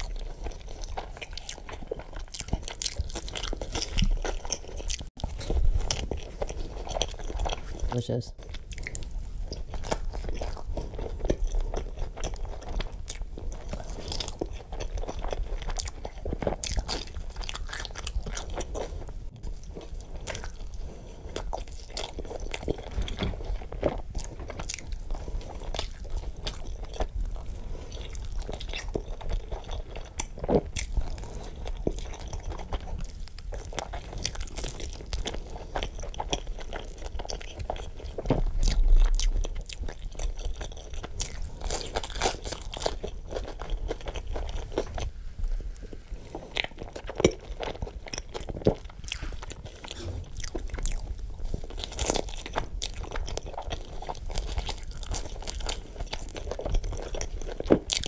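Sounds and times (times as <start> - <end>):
man chewing and crunching food: 0.0 - 58.0.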